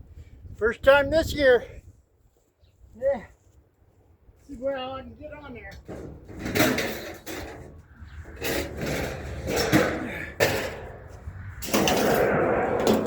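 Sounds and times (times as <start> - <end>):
scrap metal scraping on truck bed: 5.9 - 13.0.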